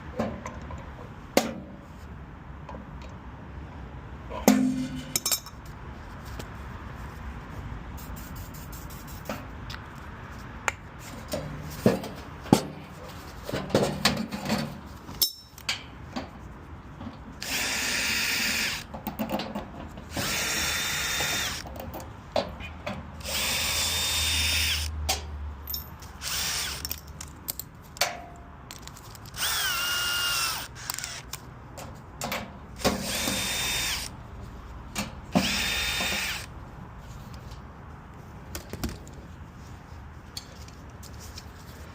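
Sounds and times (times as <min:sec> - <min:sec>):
power drill whining: 0:17.4 - 0:18.9, 0:20.1 - 0:21.6, 0:23.2 - 0:24.9, 0:26.2 - 0:26.8, 0:29.4 - 0:31.2, 0:33.0 - 0:34.1, 0:35.4 - 0:36.5.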